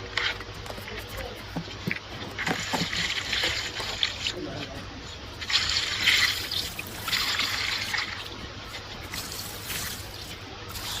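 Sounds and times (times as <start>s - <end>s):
liquid hissing and trickling: 2.4s - 4.4s, 5.3s - 11.0s.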